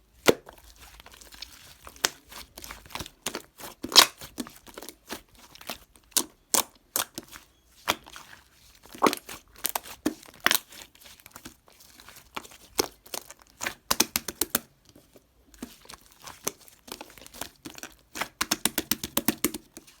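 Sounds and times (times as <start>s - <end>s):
crinkly material crackling and tearing: 8.0s - 13.9s.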